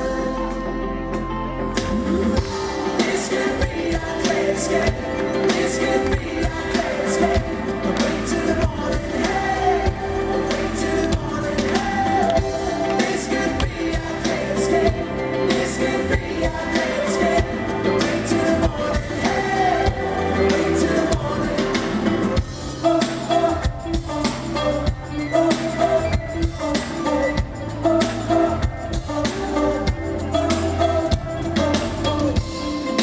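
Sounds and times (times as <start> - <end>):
live pop rock band: 0.0 - 33.0
steady drum beat: 1.8 - 33.0.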